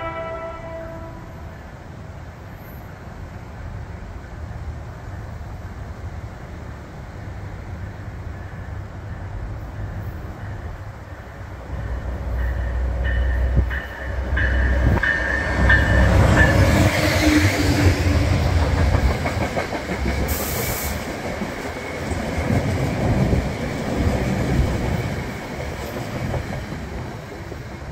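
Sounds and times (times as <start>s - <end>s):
train coaches rattling over rails: 8.2s - 27.9s.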